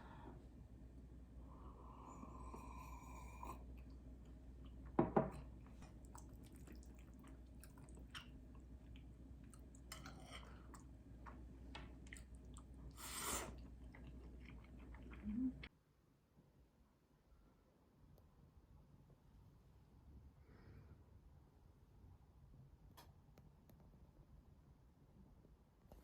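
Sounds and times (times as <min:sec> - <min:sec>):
person chewing food: 0:02.5 - 0:15.6.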